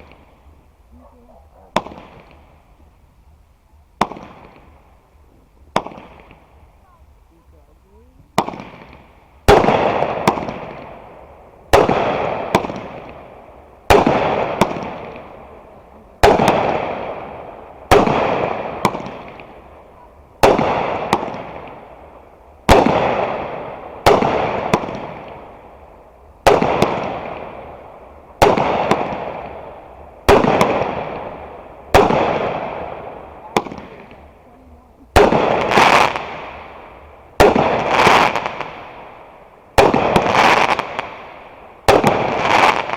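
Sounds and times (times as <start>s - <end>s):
fireworks banging: 0.0s - 3.1s, 4.0s - 42.9s.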